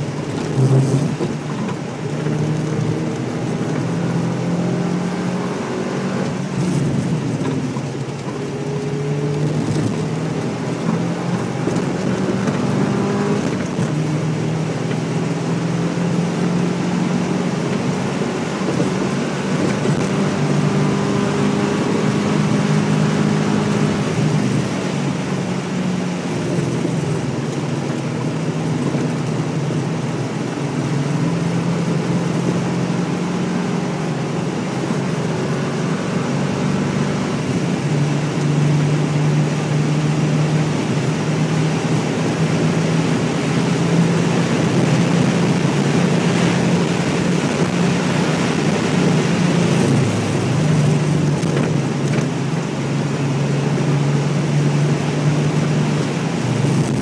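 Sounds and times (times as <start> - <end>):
tyre and wind noise: 0.0 - 15.2, 16.9 - 32.8, 33.6 - 57.0
car engine accelerating and shifting: 0.0 - 57.0.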